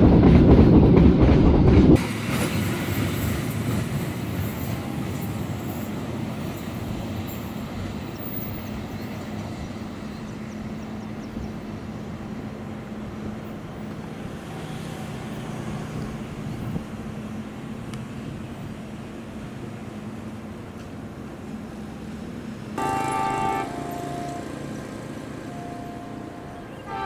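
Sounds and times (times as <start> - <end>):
freight train wagons rumbling: 15.8 - 27.0.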